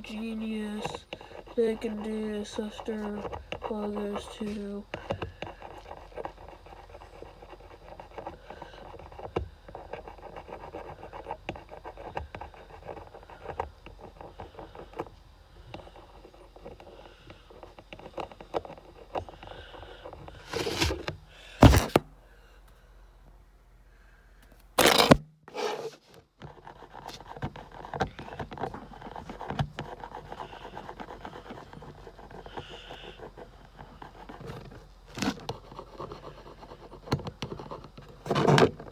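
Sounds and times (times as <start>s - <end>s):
pen scratching on plastic: 0.0s - 22.0s, 24.8s - 38.9s
handling bumps: 20.3s - 22.1s.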